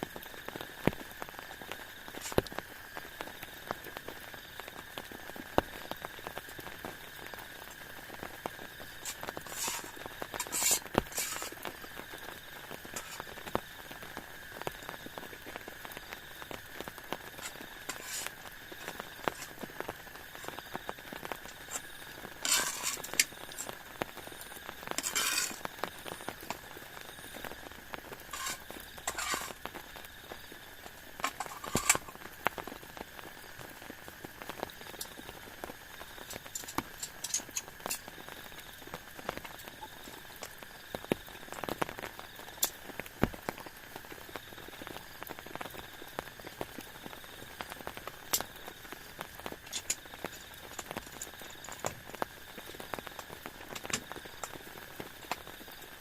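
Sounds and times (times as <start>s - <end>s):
low steady hiss: 0.0s - 56.0s
raindrops pattering: 0.0s - 56.0s
rustling: 9.0s - 11.6s, 13.0s - 13.3s, 17.4s - 19.8s, 21.5s - 23.7s, 25.0s - 25.6s, 28.3s - 29.6s.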